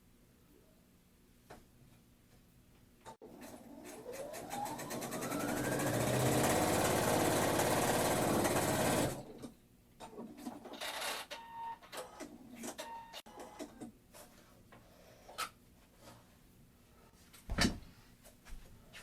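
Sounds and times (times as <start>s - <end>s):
electric sewing machine running: 3.2s - 9.4s.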